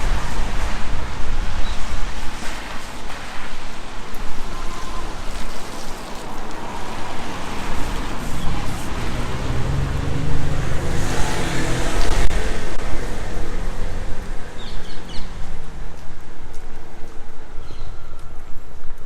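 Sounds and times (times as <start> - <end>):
street noise: 0.0 - 19.0
vehicle engine driving past: 6.7 - 15.4.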